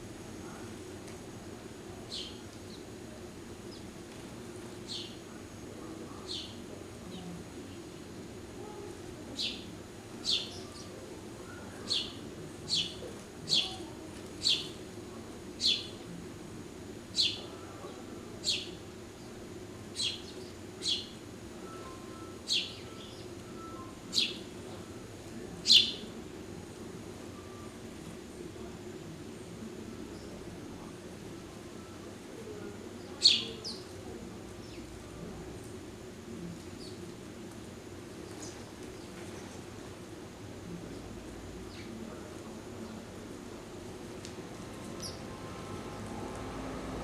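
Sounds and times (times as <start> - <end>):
low background hum: 0.0 - 47.0
small bird chirping: 25.6 - 26.0, 33.2 - 33.9.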